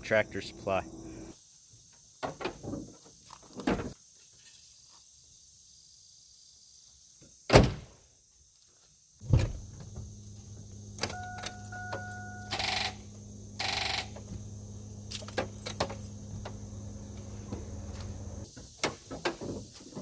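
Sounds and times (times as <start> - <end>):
clunks: 9.2 - 18.4
truck engine running: 9.7 - 18.4
dashboard warning chime: 10.9 - 15.0.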